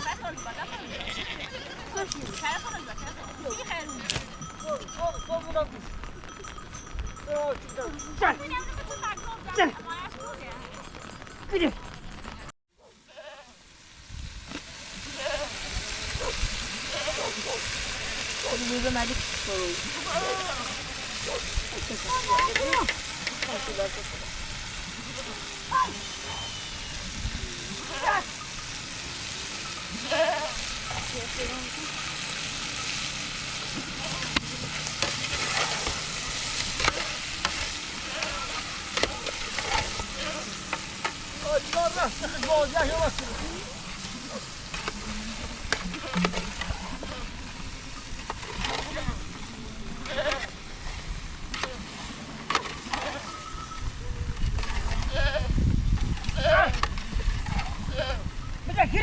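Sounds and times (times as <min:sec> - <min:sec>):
rain hissing: 0:00.0 - 0:59.0
goats bleating: 0:00.1 - 0:02.6, 0:13.0 - 0:13.6, 0:15.0 - 0:15.8, 0:19.8 - 0:21.2, 0:27.7 - 0:28.4, 0:29.8 - 0:31.2, 0:36.8 - 0:40.8, 0:50.0 - 0:50.6, 0:54.9 - 0:55.6, 0:56.3 - 0:56.8, 0:57.8 - 0:58.3
food sizzling in a pot: 0:12.8 - 0:58.6.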